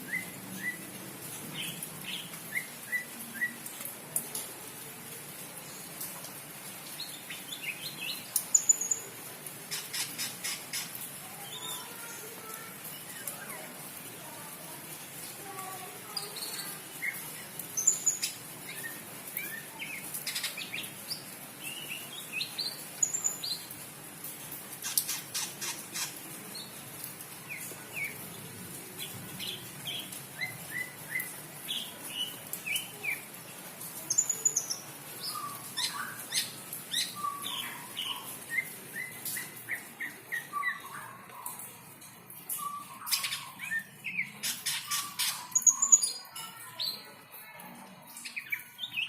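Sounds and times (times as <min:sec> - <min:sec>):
bird singing chirps and trills: 0:34.0 - 0:41.6, 0:42.4 - 0:47.0.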